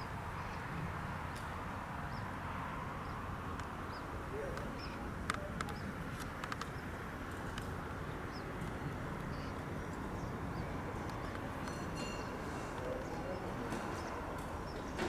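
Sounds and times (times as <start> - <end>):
sharp clicks: 4.5 - 7.8.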